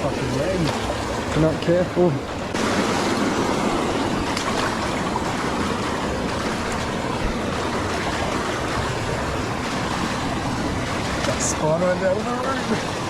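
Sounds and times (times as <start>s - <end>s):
flowing creek: 0.0s - 13.0s
heavy rain: 0.0s - 13.0s.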